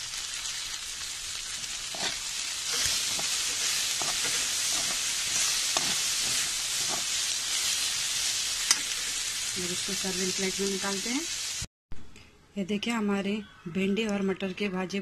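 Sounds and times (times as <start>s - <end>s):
vegetables sizzling in hot oil: 0.0s - 11.7s
spatula scraping pan: 1.9s - 7.9s.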